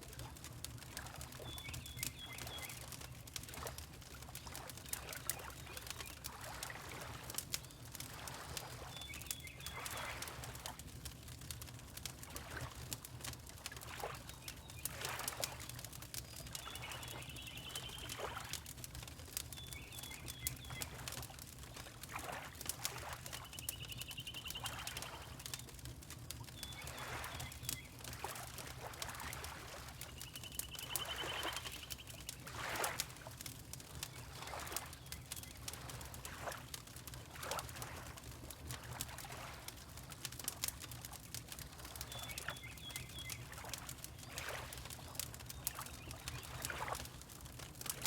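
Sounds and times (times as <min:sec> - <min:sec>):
water lapping: 0:00.2 - 0:10.9, 0:11.9 - 0:18.8, 0:19.7 - 0:25.4, 0:26.0 - 0:48.0
fireplace crackling: 0:25.2 - 0:44.2.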